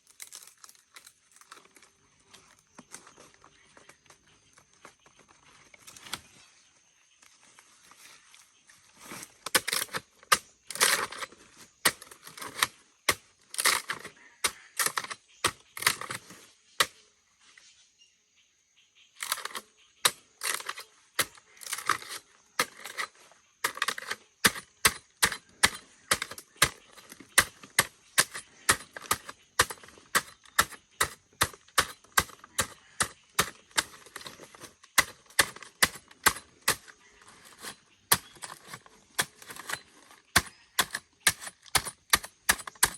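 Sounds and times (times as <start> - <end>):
chopping wood: 19.2 - 42.9.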